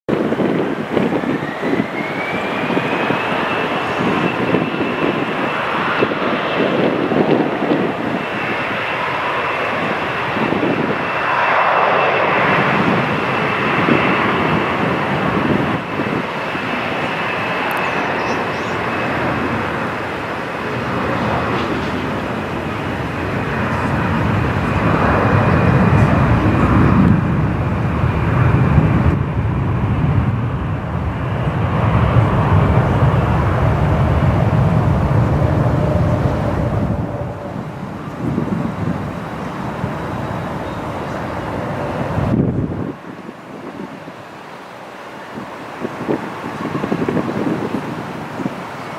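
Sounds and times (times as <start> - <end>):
jet engines roaring: 0.1 - 48.9
low rumble: 20.8 - 42.8.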